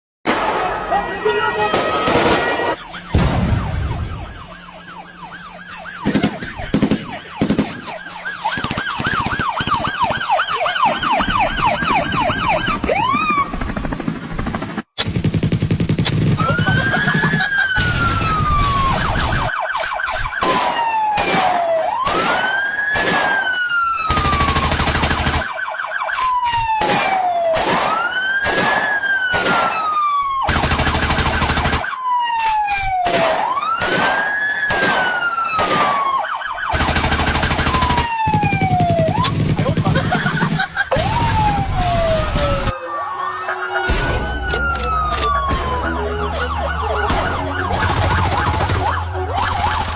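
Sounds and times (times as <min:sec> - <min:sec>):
wailing siren: 0:00.6 - 0:14.2, 0:16.4 - 0:49.9.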